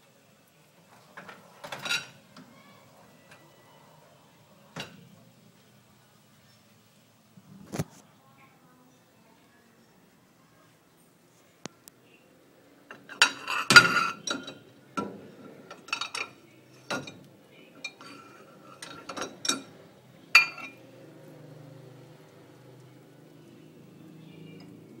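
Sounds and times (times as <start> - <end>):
dishes and glasses clinking: 1.2 - 2.2, 12.9 - 19.8, 20.4 - 20.8.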